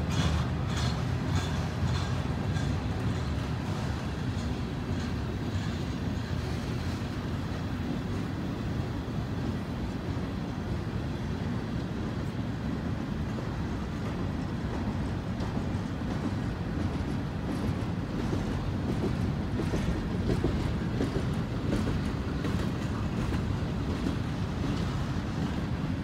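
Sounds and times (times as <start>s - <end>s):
freight train rumbling on rails: 0.0s - 26.0s.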